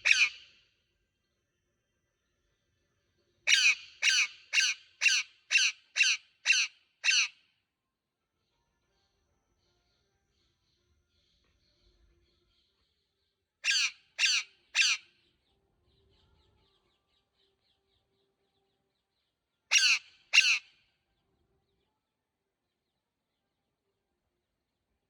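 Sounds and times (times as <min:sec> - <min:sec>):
parrot squawking: 0:00.0 - 0:00.4, 0:03.5 - 0:07.4, 0:13.6 - 0:15.0, 0:19.7 - 0:20.7.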